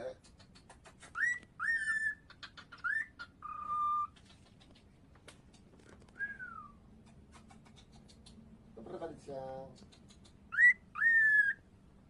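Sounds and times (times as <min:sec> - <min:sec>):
cockatiel whistling: 0:01.1 - 0:04.2, 0:06.2 - 0:06.8, 0:10.5 - 0:11.6
sharp clicks: 0:09.7 - 0:10.4.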